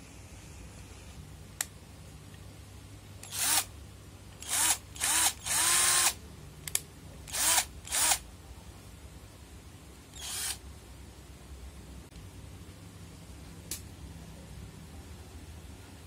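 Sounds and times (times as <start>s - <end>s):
electric drill whirring: 3.2s - 3.7s, 4.4s - 6.2s, 7.3s - 8.2s, 10.2s - 10.6s.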